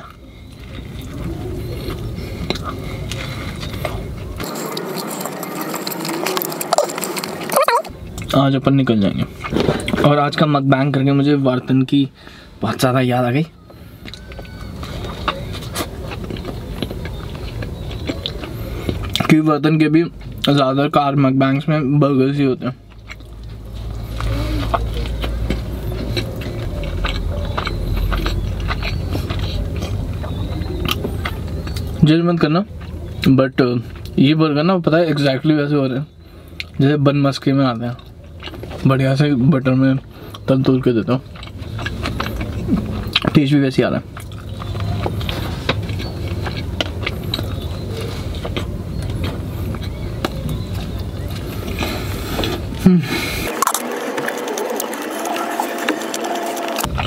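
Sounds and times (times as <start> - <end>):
person chewing food: 0.0 - 8.4, 9.2 - 10.0, 13.6 - 19.5, 22.8 - 32.0, 32.7 - 34.2, 36.1 - 36.8, 37.6 - 57.0
steady low hum: 0.0 - 37.1.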